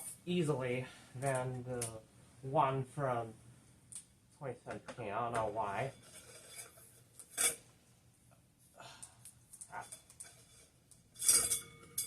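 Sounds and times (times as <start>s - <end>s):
faint metallic ring: 9.8s - 12.0s.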